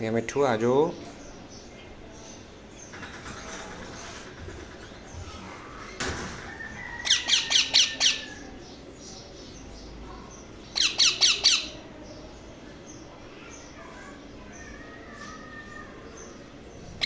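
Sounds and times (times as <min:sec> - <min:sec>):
parrot chick squawking: 0:06.9 - 0:08.5, 0:10.8 - 0:11.8.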